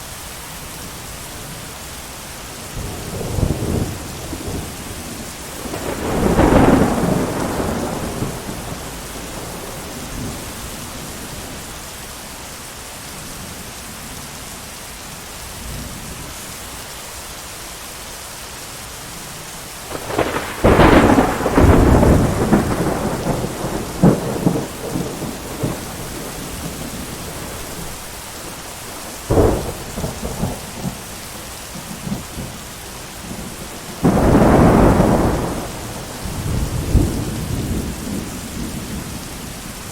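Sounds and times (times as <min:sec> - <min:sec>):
steady rain: 0:00.0 - 0:39.9
rolling thunder: 0:02.8 - 0:11.6, 0:19.9 - 0:32.6, 0:33.2 - 0:39.9
sharp thunder clap: 0:05.6 - 0:10.6, 0:19.9 - 0:27.9, 0:34.0 - 0:38.8.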